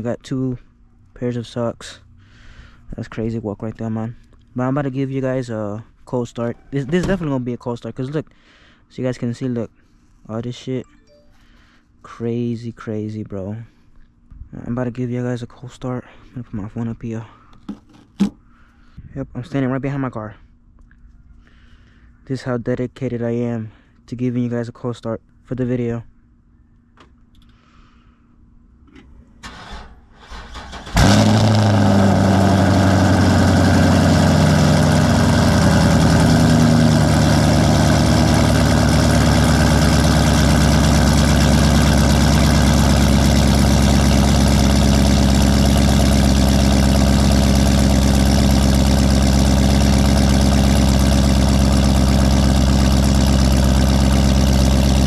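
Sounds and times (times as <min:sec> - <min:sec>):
car engine cold start and idle: 0:29.4 - 0:55.0.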